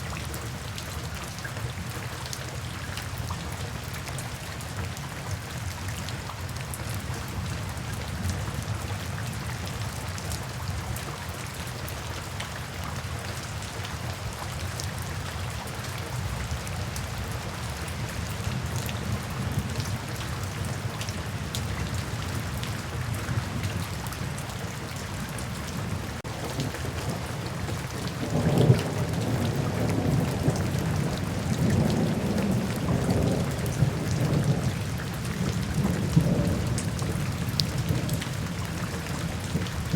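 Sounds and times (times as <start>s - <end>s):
heavy rain falling: 0.0s - 39.9s
thunder rumbling: 25.9s - 34.7s.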